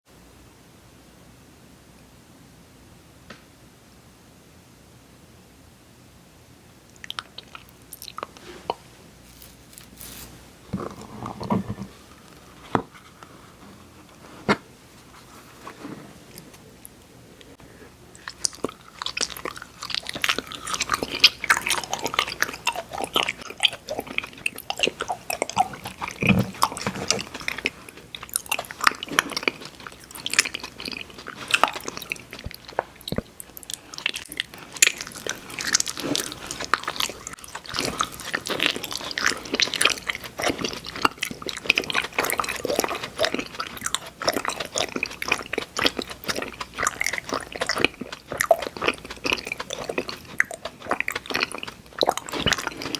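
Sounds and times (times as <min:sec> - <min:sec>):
candy crunching and chewing: 0:06.9 - 0:11.1, 0:18.1 - 0:52.9.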